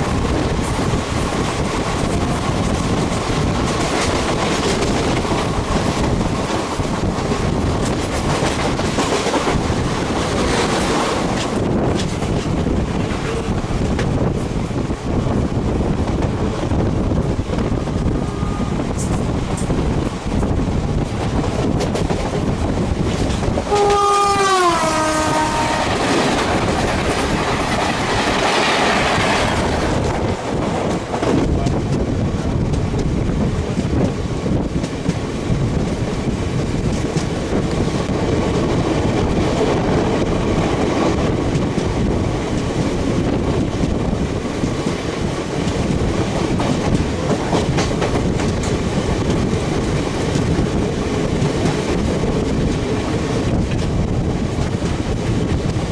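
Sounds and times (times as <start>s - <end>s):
train wheels clacking on track: 0.0s - 55.9s
train horn: 17.8s - 19.2s, 23.7s - 26.4s.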